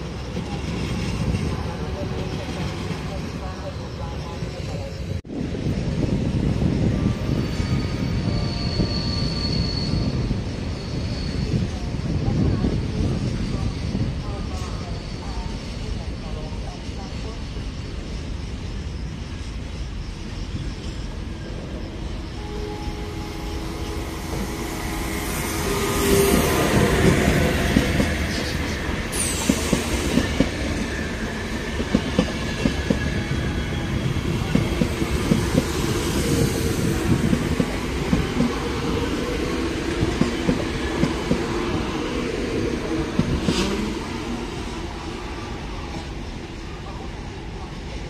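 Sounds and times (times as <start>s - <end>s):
high squeal: 6.9s - 12.2s, 20.0s - 31.6s
locomotive passing: 19.9s - 48.0s
train wheels clacking: 24.3s - 41.8s.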